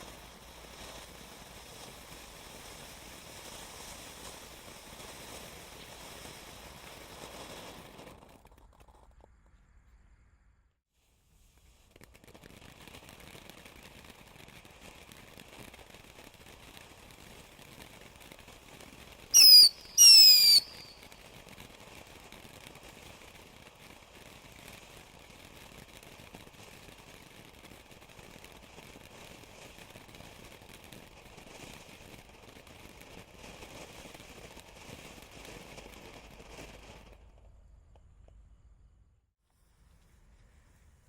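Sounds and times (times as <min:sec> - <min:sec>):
faint steady hiss: 0:00.0 - 0:41.0
firework whistles falling in pitch: 0:19.3 - 0:21.2.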